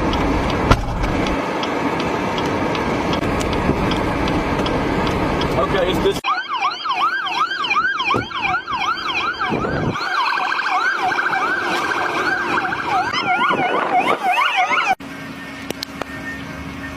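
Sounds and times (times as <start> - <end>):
emergency sirens yelping: 4.2 - 16.9.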